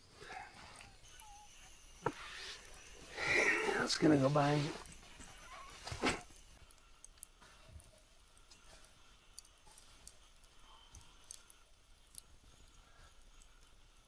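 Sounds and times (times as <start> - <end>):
faint scattered clicks: 6.3 - 13.9.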